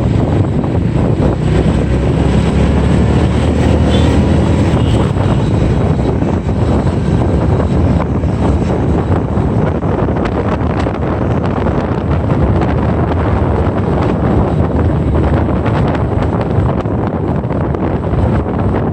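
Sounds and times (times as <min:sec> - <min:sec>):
motorbike engine and road noise: 0:00.0 - 0:18.9
wind buffeting microphone: 0:00.0 - 0:18.9.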